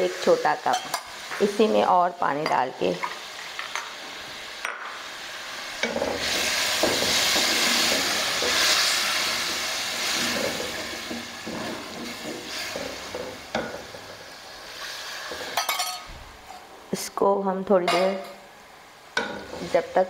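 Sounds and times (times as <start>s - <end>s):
food sizzling in hot pan: 0.0s - 20.0s
wooden spatula stirring: 5.8s - 14.0s
steel cup clinking on pan: 15.6s - 16.1s.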